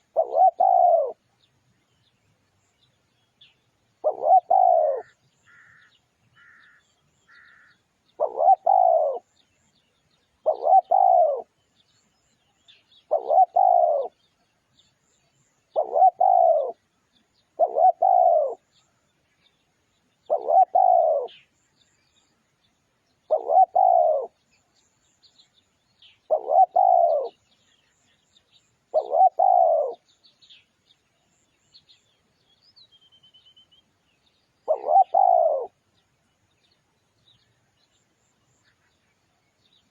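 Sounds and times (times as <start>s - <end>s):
dove cooing: 0.0s - 1.3s, 4.0s - 9.3s, 10.4s - 11.6s, 13.1s - 14.3s, 15.7s - 16.8s, 17.6s - 18.7s, 20.2s - 21.4s, 23.3s - 24.4s, 26.3s - 27.4s, 28.9s - 30.0s, 34.6s - 35.8s
small birds chirping: 0.0s - 39.9s.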